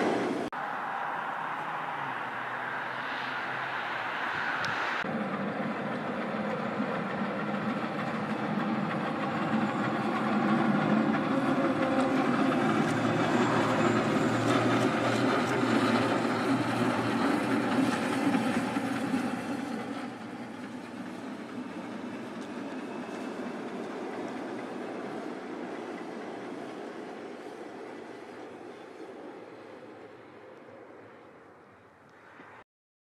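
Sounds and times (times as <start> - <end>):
train wheels clattering on rails: 5.0 - 30.7.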